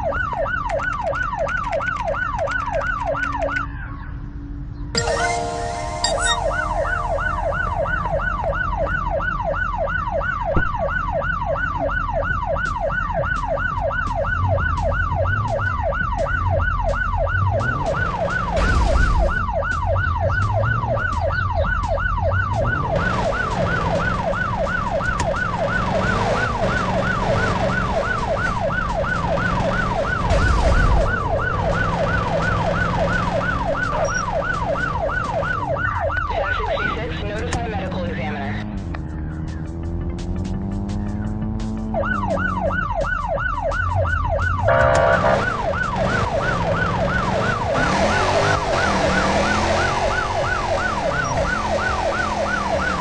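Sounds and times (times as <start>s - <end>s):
siren yelping: 0.0s - 3.8s, 5.0s - 37.8s, 41.8s - 53.0s.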